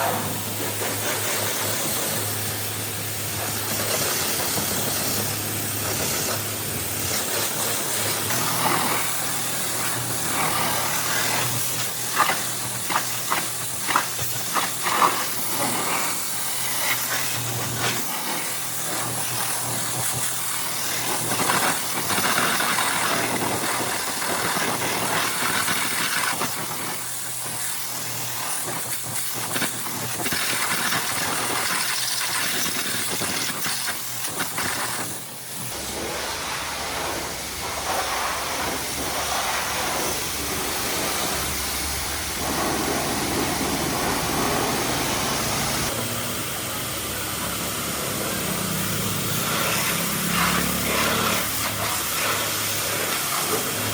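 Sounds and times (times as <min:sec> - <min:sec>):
hissing water jet: 0:00.0 - 0:53.9
low motor hum: 0:35.6 - 0:51.2.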